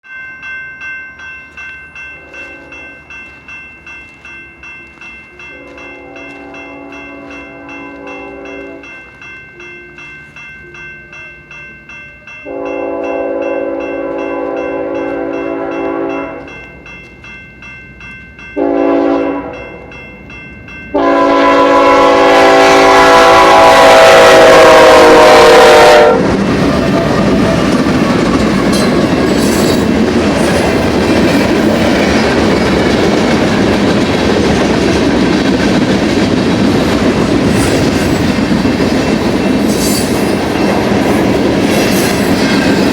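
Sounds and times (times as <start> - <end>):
locomotive air horn: 5.5 - 8.8, 12.5 - 16.4, 18.6 - 19.6, 20.9 - 26.3
train wheels clickety-clack: 22.0 - 42.9.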